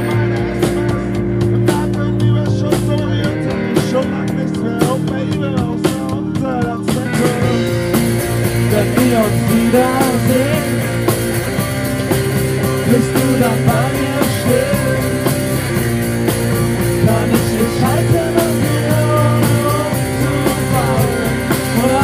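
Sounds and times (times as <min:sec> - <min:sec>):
rock band playing live: 0:00.0 - 0:22.0.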